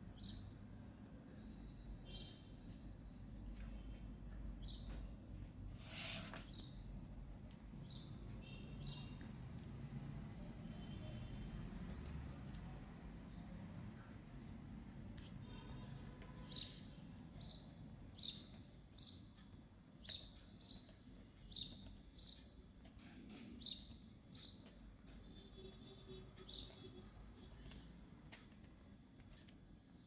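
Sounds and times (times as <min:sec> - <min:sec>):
bird chirping: 0:01.4 - 0:02.8, 0:07.8 - 0:09.2, 0:16.3 - 0:22.7, 0:23.6 - 0:27.6.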